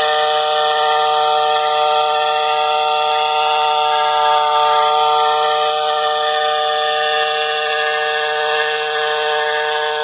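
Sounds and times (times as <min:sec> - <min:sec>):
quadcopter engine droning: 0:03.3 - 0:10.0.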